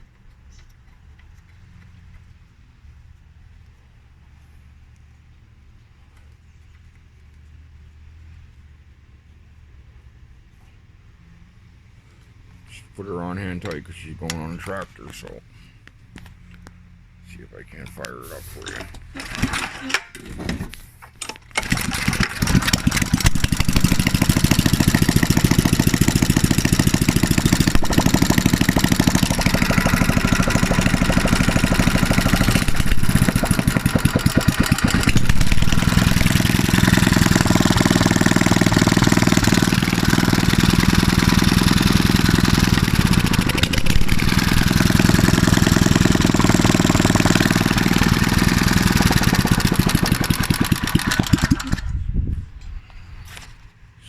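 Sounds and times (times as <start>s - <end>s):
small engine running: 17.3s - 20.0s, 21.5s - 52.1s.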